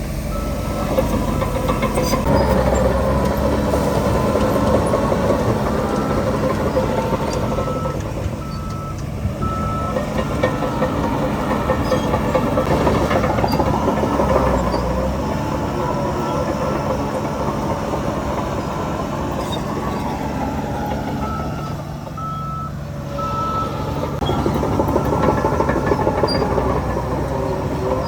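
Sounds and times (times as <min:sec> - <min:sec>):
heavy diesel machinery rumbling: 0:00.0 - 0:28.0
back-up alarm beeping: 0:05.8 - 0:11.9, 0:21.2 - 0:26.4.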